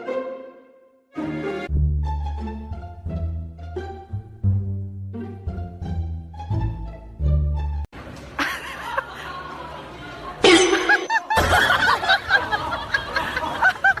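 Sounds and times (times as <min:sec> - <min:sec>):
people laughing: 0:08.4 - 0:14.0.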